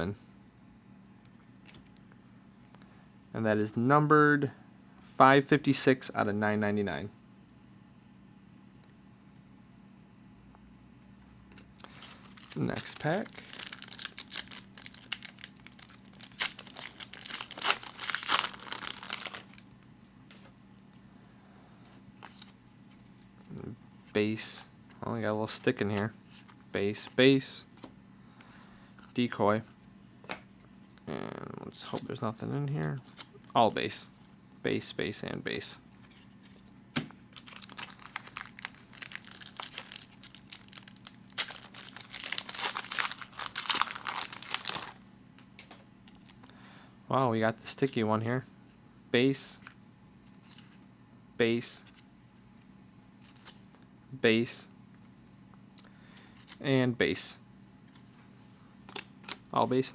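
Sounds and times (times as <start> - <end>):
foil wrapper tearing and crinkling: 11.9 - 19.6, 37.3 - 45.0.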